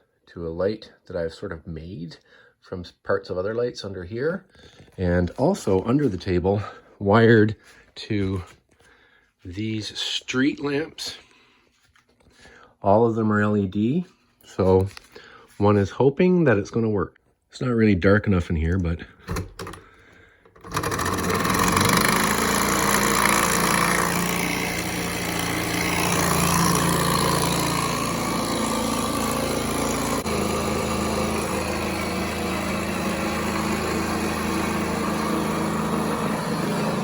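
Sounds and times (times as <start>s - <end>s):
model engine mechanical whirr: 20.5s - 37.0s.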